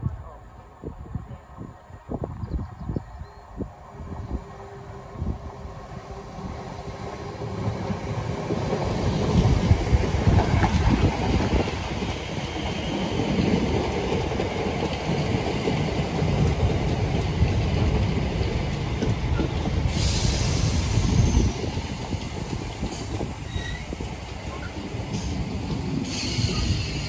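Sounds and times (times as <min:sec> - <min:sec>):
train wheels rumbling on rail: 0:03.7 - 0:27.0
sudden hiss: 0:19.8 - 0:21.6
faint high wheel squeal: 0:23.4 - 0:24.8, 0:26.1 - 0:27.0.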